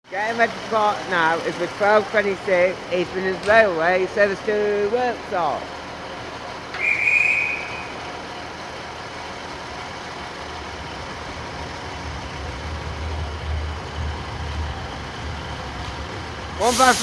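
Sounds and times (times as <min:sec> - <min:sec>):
diesel train engine rumble: 0:00.0 - 0:17.0
platform dispatch whistle: 0:06.8 - 0:08.0, 0:16.6 - 0:17.0.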